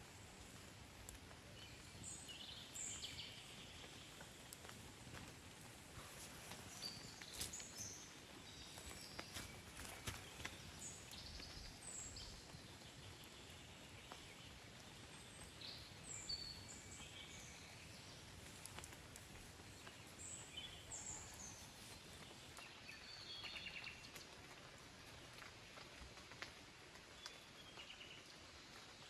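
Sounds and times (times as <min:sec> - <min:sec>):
small birds chirping: 0:01.3 - 0:24.4.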